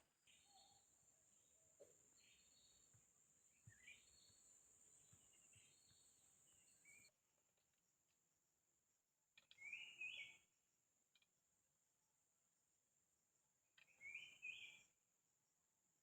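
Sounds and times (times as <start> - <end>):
soft bird chirps: 0.2 - 7.1, 9.4 - 10.5, 13.8 - 15.0.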